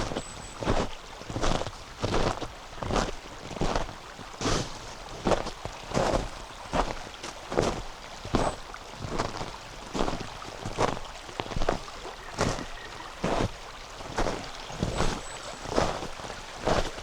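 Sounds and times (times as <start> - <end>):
river flowing: 0.0 - 17.0
footsteps crunching on snow: 8.4 - 17.0.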